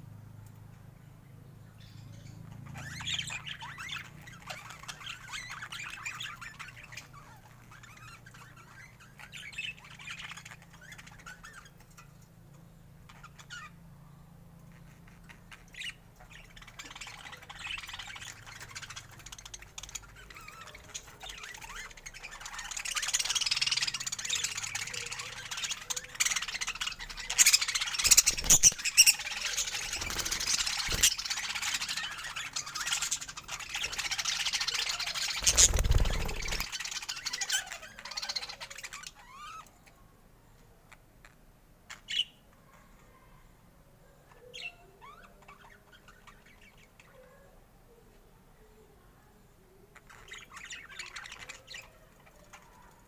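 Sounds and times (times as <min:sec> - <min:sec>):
budgerigars chattering and chirping: 0:01.8 - 0:13.8, 0:14.7 - 0:39.7, 0:41.3 - 0:42.4, 0:50.0 - 0:53.0
sharp squawks: 0:15.1 - 0:39.7.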